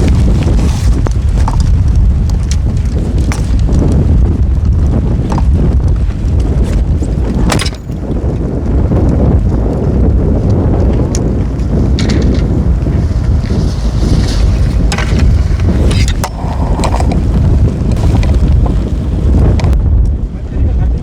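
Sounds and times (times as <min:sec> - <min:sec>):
wind buffeting microphone: 0:00.0 - 0:21.0
clicks and rattles: 0:06.4 - 0:08.2, 0:11.9 - 0:12.6.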